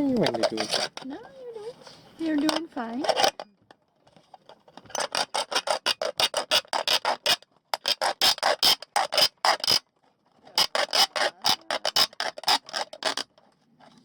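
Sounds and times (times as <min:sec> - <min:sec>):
hand saw rasping through metal: 0:00.2 - 0:01.1, 0:05.0 - 0:09.8, 0:10.6 - 0:13.2.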